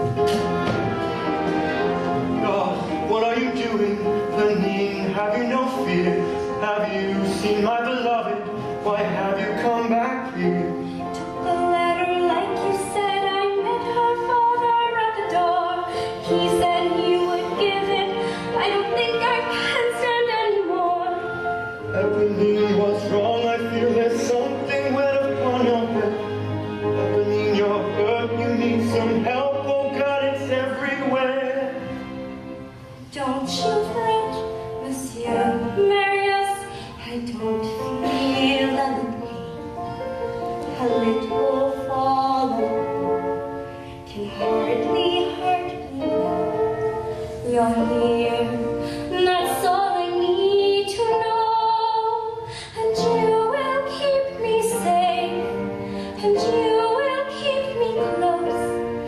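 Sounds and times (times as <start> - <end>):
instrumental accompaniment: 0.0 - 59.0
woman singing a ballad: 11.2 - 21.4, 33.1 - 39.4, 40.7 - 43.3, 44.0 - 46.8, 47.4 - 59.0.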